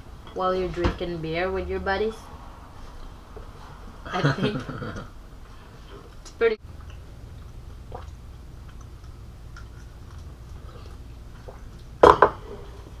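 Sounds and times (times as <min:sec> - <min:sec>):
low steady hum: 0:00.0 - 0:13.0
people chewing food: 0:04.5 - 0:13.0.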